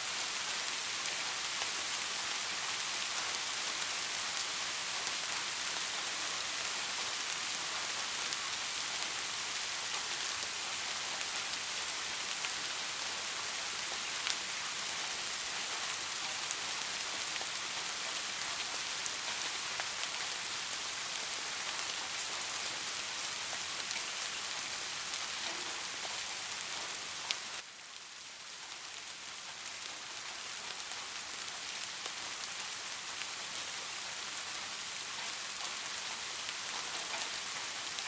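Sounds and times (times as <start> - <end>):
steady rain falling: 0.0 - 38.0
sharp tick of a raindrop: 23.5 - 33.6, 34.9 - 38.0.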